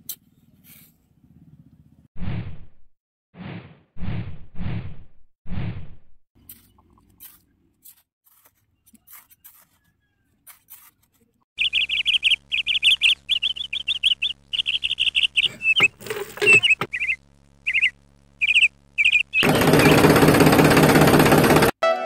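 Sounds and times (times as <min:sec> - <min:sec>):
small birds chirping trills: 0:11.6 - 0:20.2
steady low hum: 0:11.6 - 0:20.7.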